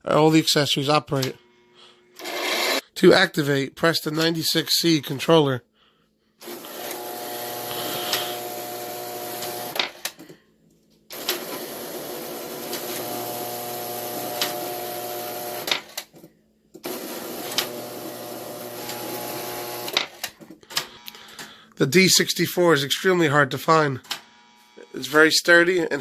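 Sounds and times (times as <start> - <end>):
electric buzz with hum: 6.5 - 10.1, 11.2 - 16.0, 16.8 - 20.3, 24.1 - 25.0.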